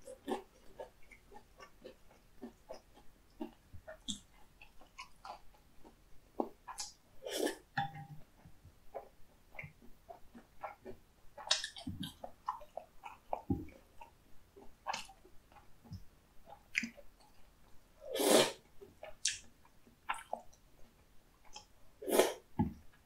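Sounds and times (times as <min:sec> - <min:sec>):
wet chewing: 0:00.0 - 0:07.7, 0:08.4 - 0:17.8, 0:18.8 - 0:21.7
mouth clicks and smacks: 0:00.1 - 0:07.7, 0:08.9 - 0:17.4, 0:19.0 - 0:20.6.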